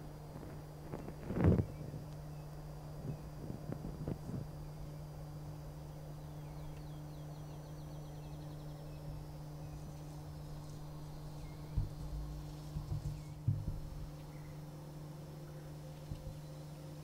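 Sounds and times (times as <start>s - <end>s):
low hum: 0.0s - 17.0s
small birds chirping: 0.4s - 17.0s.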